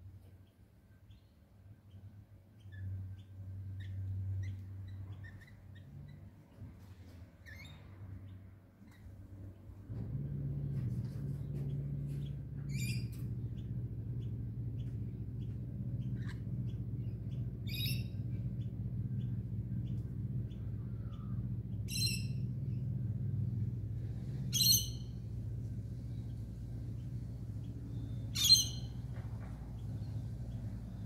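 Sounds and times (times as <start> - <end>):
steady low hum: 0.0 - 31.0
harsh bird calls: 11.2 - 23.1, 24.1 - 25.2, 26.0 - 31.0.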